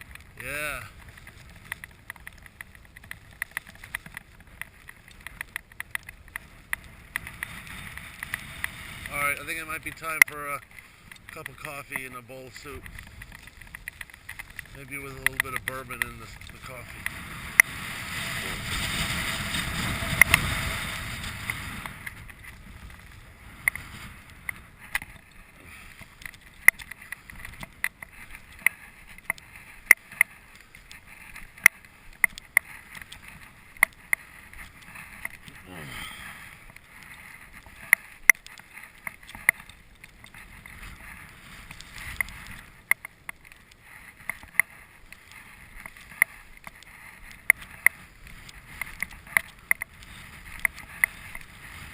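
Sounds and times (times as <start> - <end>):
wind buffeting microphone: 6.3 - 27.8.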